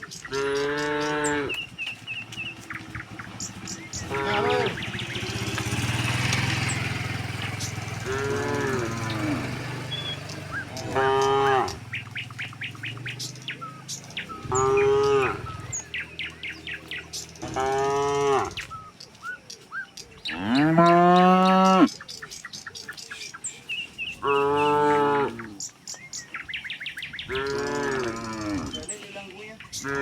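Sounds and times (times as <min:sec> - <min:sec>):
cattle mooing: 0:00.0 - 0:01.8, 0:02.6 - 0:18.7, 0:20.3 - 0:22.0, 0:24.1 - 0:25.7, 0:27.3 - 0:30.0
small birds chirping: 0:00.0 - 0:30.0.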